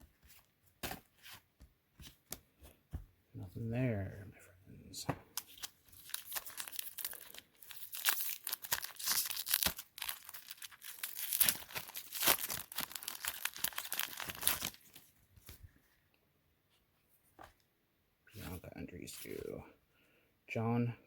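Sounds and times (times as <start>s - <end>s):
wrapper crackling and tearing: 5.4s - 15.1s.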